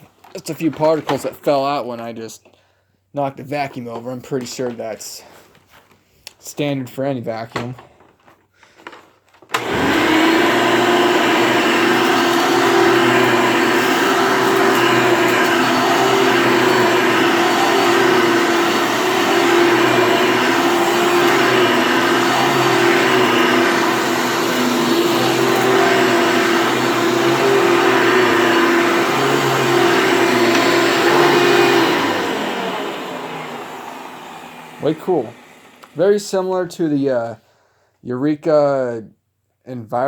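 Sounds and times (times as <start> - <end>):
vacuum cleaner motor hum: 9.5 - 36.2.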